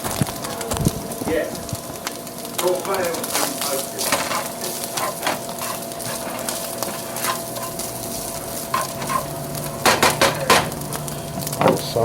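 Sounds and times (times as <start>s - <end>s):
sausage sizzling in a frying pan: 0.0s - 12.0s
utensil scraping a pan: 3.2s - 10.8s.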